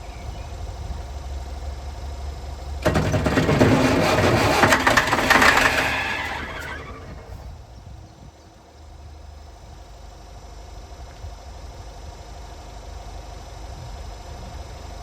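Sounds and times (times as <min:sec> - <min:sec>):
starter motor cranking diesel engine: 0:02.8 - 0:07.6.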